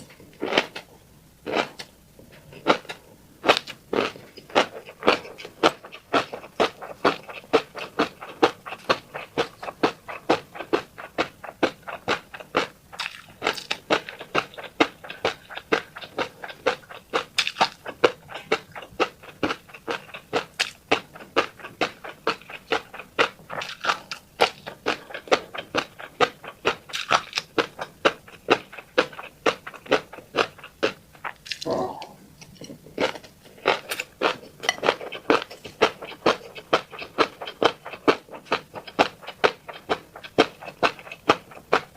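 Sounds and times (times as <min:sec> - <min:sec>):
wet chewing clicks: 0:02.6 - 0:41.9.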